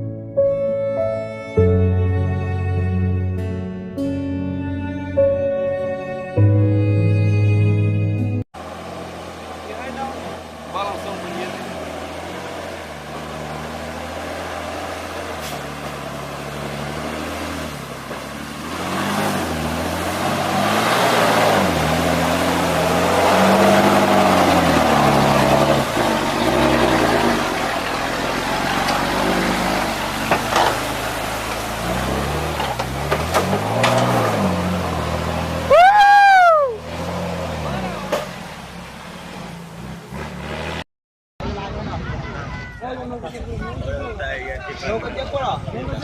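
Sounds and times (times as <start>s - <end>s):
vehicle engine revving: 8.6s - 40.9s.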